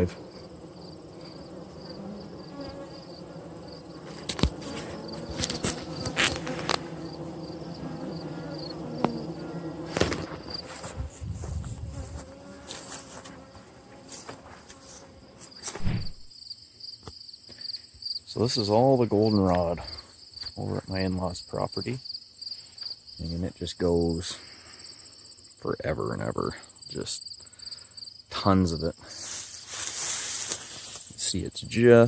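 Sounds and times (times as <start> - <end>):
bees buzzing: 0.0 - 16.3
crickets chirping: 0.0 - 32.0.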